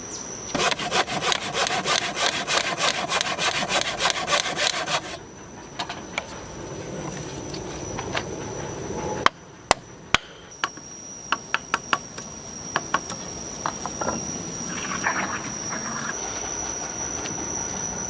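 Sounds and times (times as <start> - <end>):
high insect drone: 0.0 - 18.0
hand saw cutting wood: 0.6 - 5.2.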